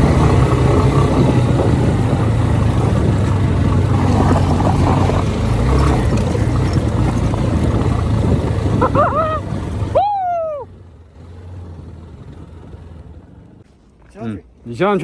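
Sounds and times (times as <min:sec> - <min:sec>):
motorcycle engine revving: 0:00.0 - 0:13.6
people shouting: 0:08.8 - 0:10.7.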